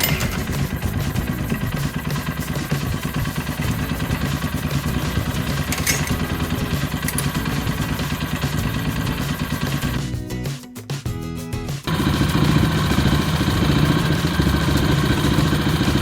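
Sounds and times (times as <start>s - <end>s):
small engine idling: 0.0s - 10.2s, 11.9s - 16.0s.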